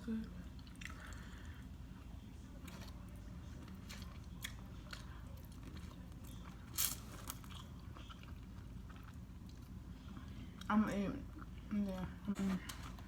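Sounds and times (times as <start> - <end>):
person chewing food: 0.6 - 10.7.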